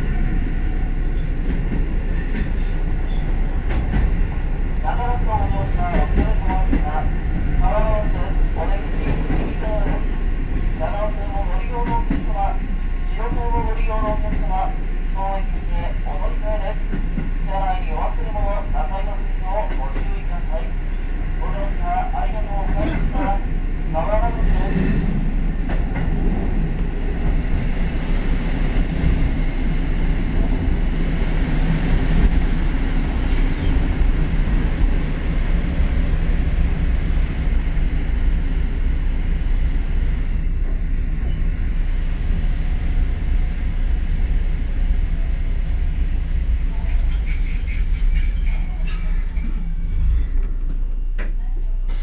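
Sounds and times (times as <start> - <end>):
train wheel and motor noise: 0.0 - 52.0
high brake squeal: 44.4 - 50.4.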